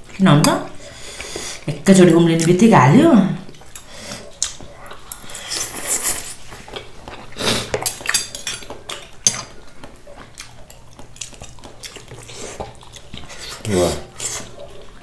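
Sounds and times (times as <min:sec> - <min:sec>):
eating sounds: 0:03.3 - 0:15.0.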